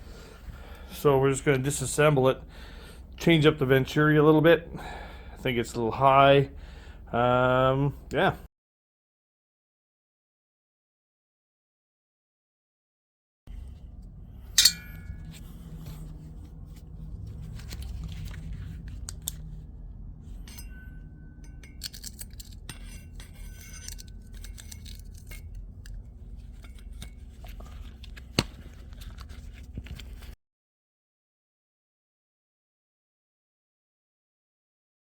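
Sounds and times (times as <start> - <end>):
steady low hum: 0.0 - 8.4, 13.5 - 30.4
metal parts clinking: 14.6 - 15.4, 20.5 - 27.2.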